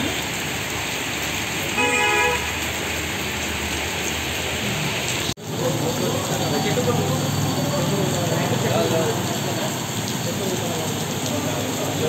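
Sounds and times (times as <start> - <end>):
heavy rain pouring: 0.0 - 12.0
traffic passing: 0.0 - 12.0
vehicle horn honking: 1.8 - 2.6.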